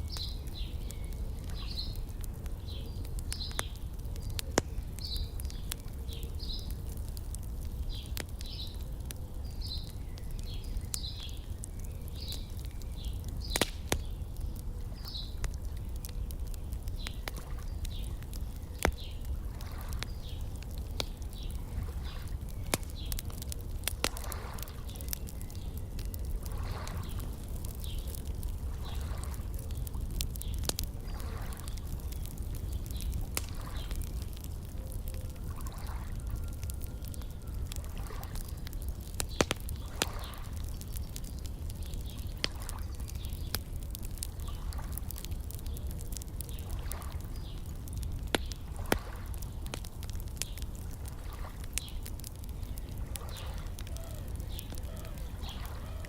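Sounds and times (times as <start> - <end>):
soft water sounds: 0.0 - 56.0
wood fire crackling and popping: 0.0 - 56.0
bird chirping: 52.6 - 56.0.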